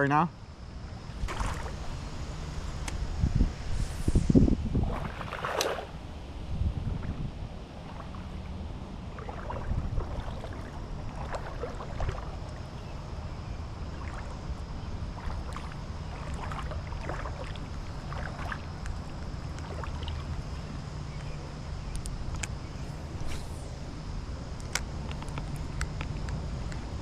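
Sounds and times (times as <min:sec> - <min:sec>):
wind rumble on microphone: 0:00.7 - 0:27.0
creek water splashing: 0:01.1 - 0:02.8, 0:04.7 - 0:21.7.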